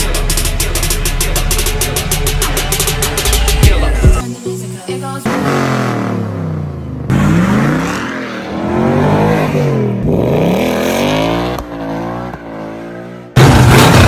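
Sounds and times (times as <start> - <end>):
car engine revving: 5.2 - 14.0.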